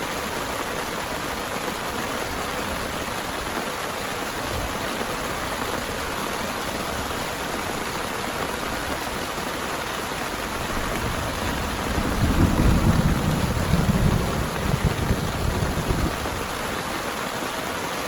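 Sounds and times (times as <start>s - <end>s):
heavy rain falling: 0.0s - 18.0s
low rumble of thunder: 10.8s - 16.6s.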